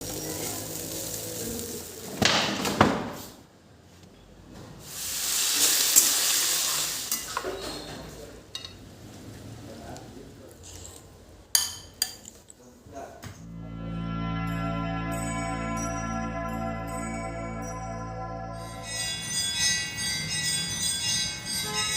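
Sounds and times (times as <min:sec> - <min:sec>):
food sizzling in a pan: 0:00.0 - 0:02.2, 0:04.8 - 0:07.5.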